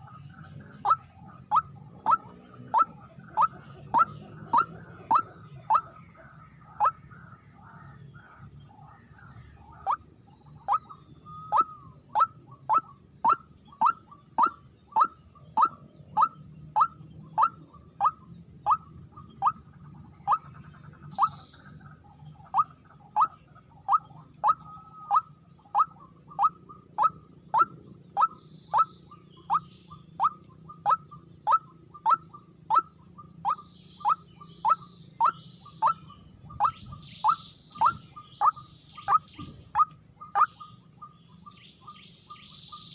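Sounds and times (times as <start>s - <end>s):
rail bird calling sharp notes: 0.8s - 5.9s, 10.6s - 19.6s, 22.6s - 41.1s.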